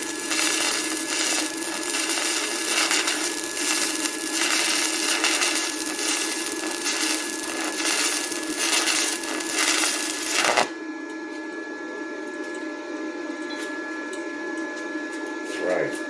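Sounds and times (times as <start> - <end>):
welding arc crackling and hissing: 0.0 - 10.8
steady electrical hum: 0.0 - 11.0.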